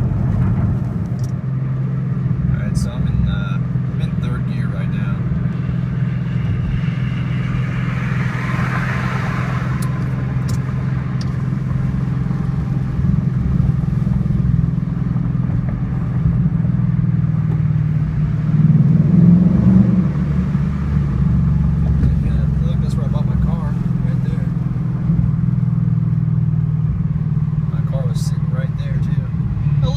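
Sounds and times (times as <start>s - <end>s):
car exhaust drone from cabin: 0.0s - 29.9s.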